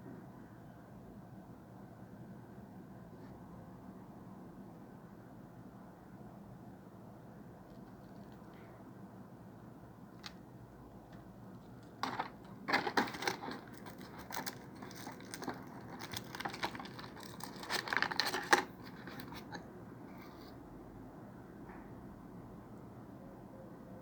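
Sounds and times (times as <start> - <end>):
packaging crinkling and rustling: 11.6 - 19.6.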